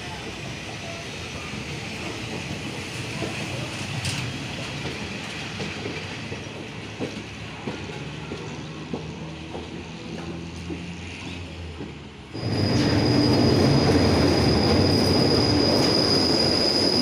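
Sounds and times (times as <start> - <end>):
train rumbling along track: 0.0 - 17.0.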